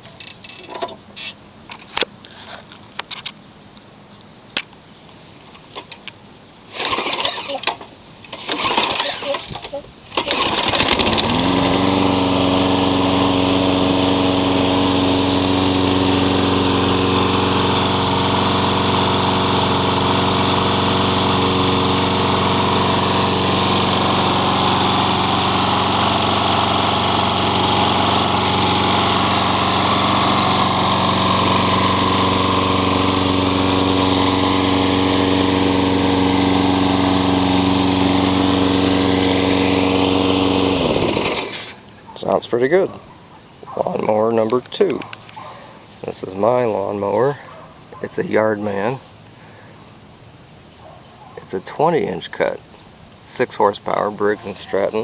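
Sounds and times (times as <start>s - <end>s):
lawn mower engine running: 6.7s - 42.9s.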